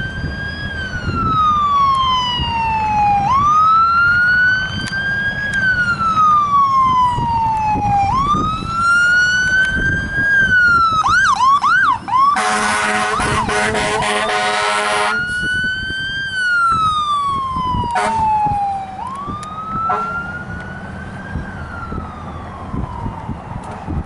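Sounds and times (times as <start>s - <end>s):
fire engine siren wailing: 0.0s - 24.0s
truck engine rumble: 0.0s - 24.0s
air horn blaring: 12.3s - 15.3s, 17.9s - 18.2s, 19.9s - 20.3s.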